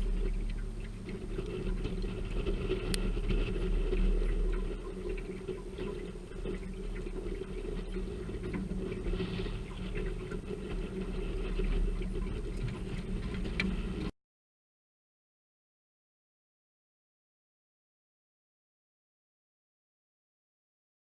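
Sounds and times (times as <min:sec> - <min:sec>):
rain pattering on metal boat: 0:00.0 - 0:14.1
steady low hum: 0:00.0 - 0:14.1.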